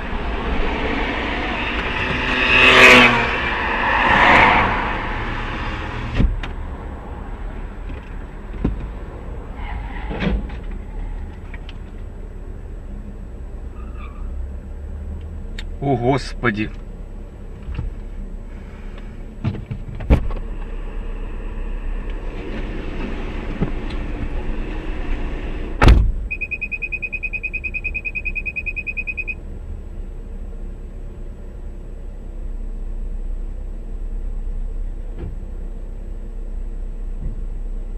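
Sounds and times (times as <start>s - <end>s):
car road and engine noise: 0.0s - 37.9s
loud collision impact: 25.3s - 26.4s
rapid electronic beeping: 26.3s - 29.4s.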